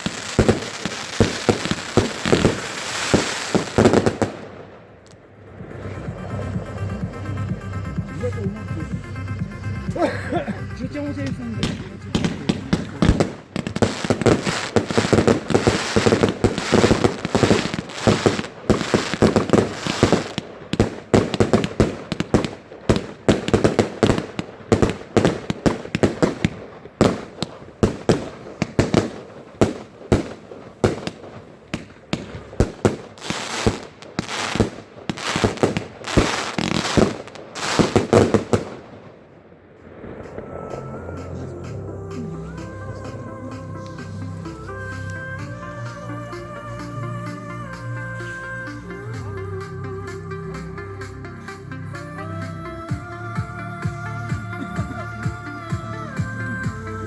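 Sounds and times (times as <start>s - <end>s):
fireworks bangs and crackling: 0.0s - 10.0s, 10.7s - 47.5s
echoing booms: 11.2s - 41.8s.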